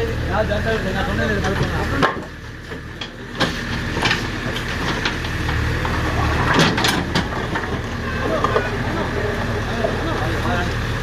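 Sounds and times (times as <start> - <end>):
diesel engine running: 0.0 - 11.0
demolition knocks and clatters: 1.4 - 9.6.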